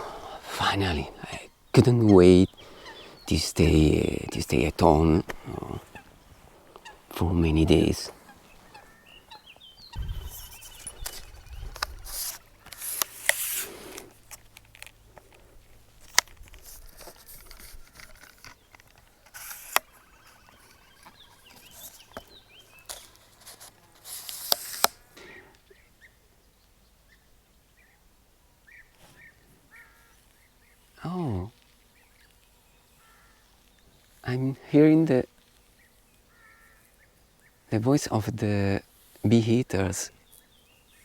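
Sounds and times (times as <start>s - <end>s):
faint short bird calls: 0.0s - 14.2s, 17.1s - 26.2s, 28.7s - 34.3s, 35.6s - 37.7s
rustling handling noises: 10.2s - 25.1s
sharp clicks: 16.0s - 22.3s.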